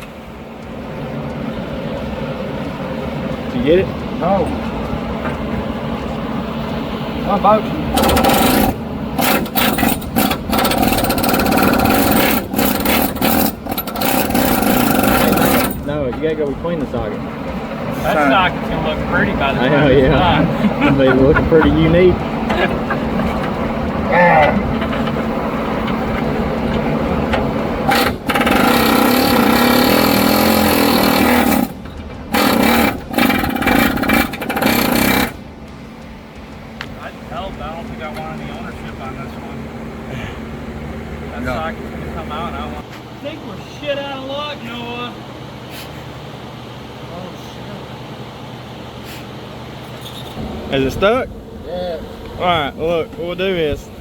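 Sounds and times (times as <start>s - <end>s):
steady low hum: 0.0s - 54.0s
pneumatic impact tool bursts: 7.9s - 15.9s, 27.8s - 35.4s.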